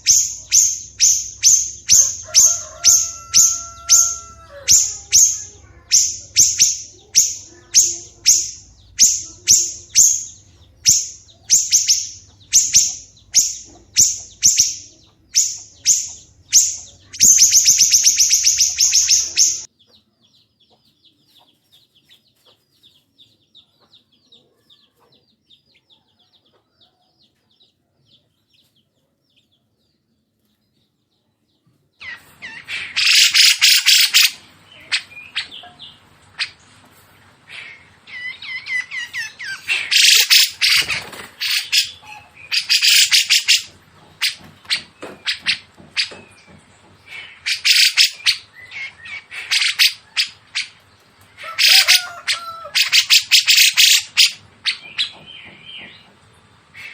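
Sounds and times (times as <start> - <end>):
bird trilling: 0.0 - 19.7, 32.0 - 36.6, 37.5 - 55.9
songbird calling: 0.0 - 20.0, 32.0 - 36.8, 37.4 - 56.1.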